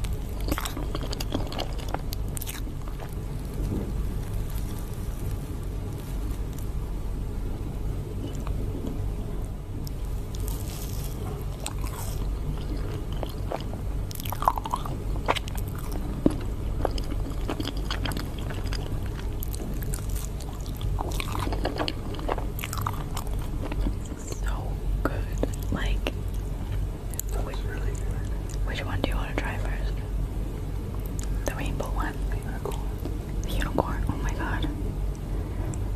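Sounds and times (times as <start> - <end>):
crunchy crackles and clicks: 0.0 - 30.1, 30.8 - 35.9
steady low hum: 0.0 - 35.9
person biting and chewing: 0.1 - 3.2, 9.9 - 24.3.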